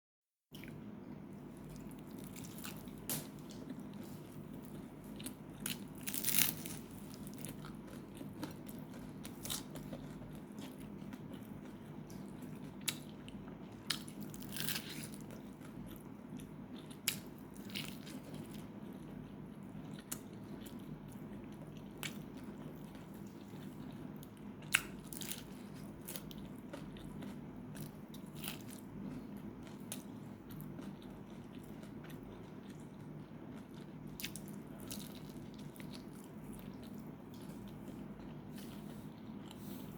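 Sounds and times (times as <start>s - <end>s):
chewing: 1.7s - 39.8s
crisp crunches of biting: 5.6s - 10.2s, 13.9s - 15.4s.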